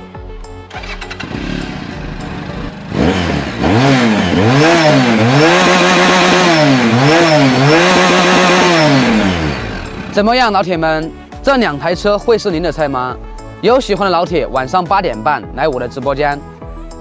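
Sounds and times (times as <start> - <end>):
motorcycle engine revving: 0.7 - 10.6.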